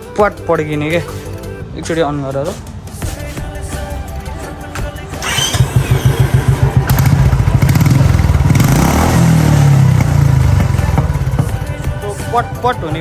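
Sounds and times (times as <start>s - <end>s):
motorcycle engine thumping: 1.9s - 13.0s
exhaust popping crackle: 4.8s - 12.2s.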